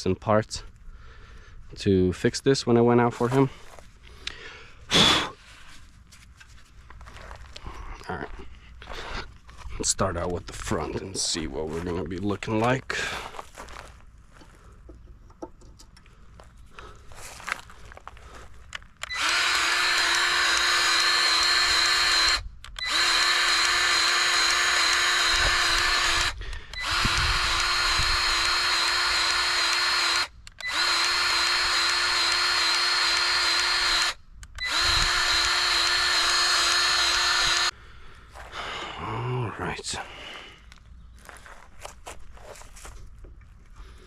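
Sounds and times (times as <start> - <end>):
grease gun motor whining: 18.7 - 37.8.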